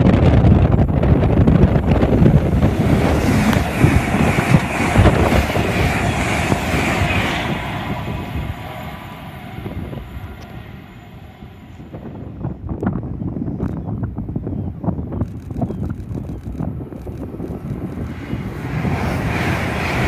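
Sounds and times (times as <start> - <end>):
train passing at speed: 0.1 - 13.5, 17.3 - 20.0.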